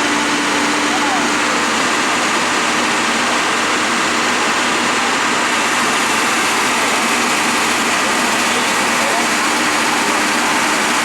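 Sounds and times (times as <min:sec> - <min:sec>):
heavy vehicle engine idling: 0:00.0 - 0:11.0.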